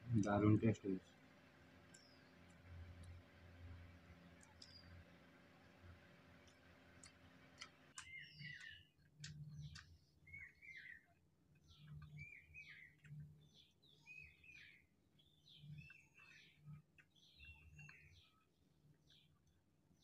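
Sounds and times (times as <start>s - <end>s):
faint small birds chirping: 0.0s - 20.0s
light clicks: 4.2s - 5.1s.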